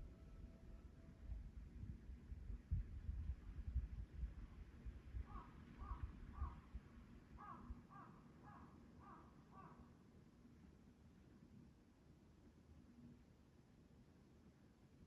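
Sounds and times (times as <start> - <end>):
crow cawing: 5.3 - 6.6, 7.4 - 9.8.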